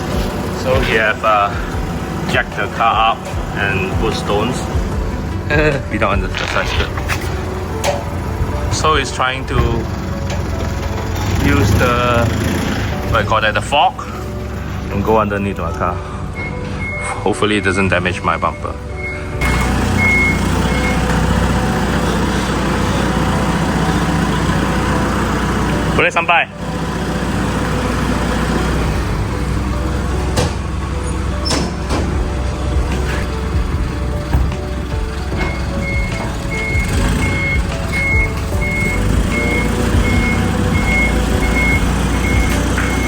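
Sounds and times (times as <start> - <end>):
diesel engine running: 0.0 - 43.0
reversing alarm beeping: 15.9 - 43.0.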